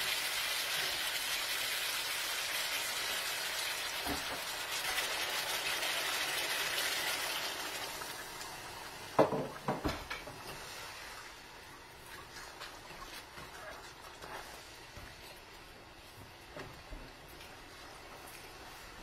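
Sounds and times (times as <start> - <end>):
chicken sizzling in a wok: 0.0 - 11.6.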